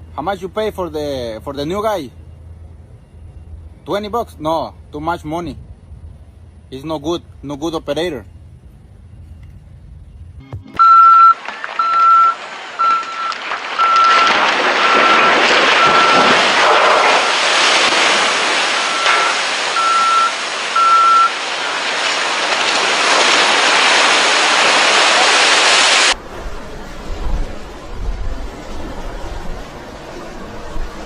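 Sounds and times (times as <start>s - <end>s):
truck reversing alarm beeping: 1.6s - 4.2s, 10.1s - 17.4s, 18.2s - 21.4s
loud rushing noise: 11.4s - 31.0s.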